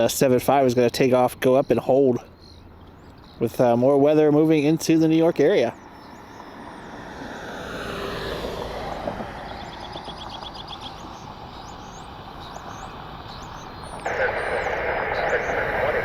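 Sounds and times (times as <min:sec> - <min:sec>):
jet engine rushing: 0:12.8 - 0:16.0.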